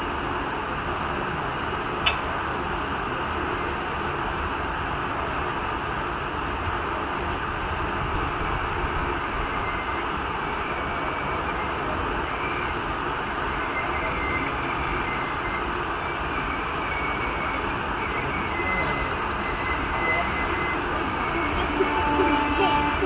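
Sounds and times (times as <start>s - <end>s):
wheels rumbling on rails: 0.0s - 23.0s
faint wheel squeals: 9.1s - 23.0s.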